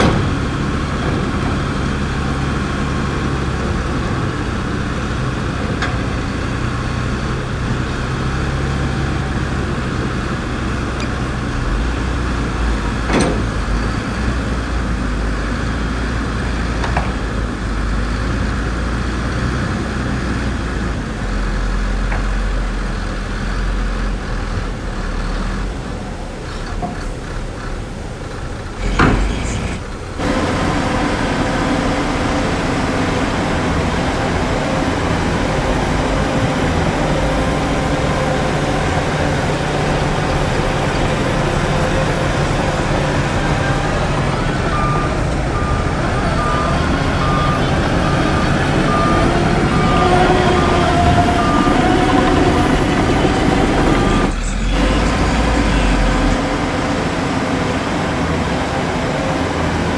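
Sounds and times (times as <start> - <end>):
heavy diesel machinery running: 0.0 - 59.9
reversing alarm beeping: 30.2 - 57.0.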